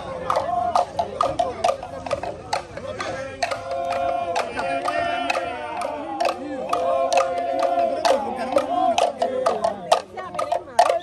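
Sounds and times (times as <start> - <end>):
group chanting in held notes: 3.0 - 9.9.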